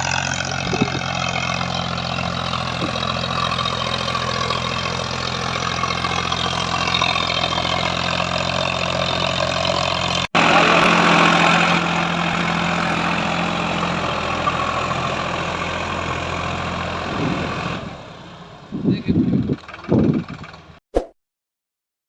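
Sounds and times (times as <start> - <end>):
tractor diesel engine running: 0.0 - 20.8.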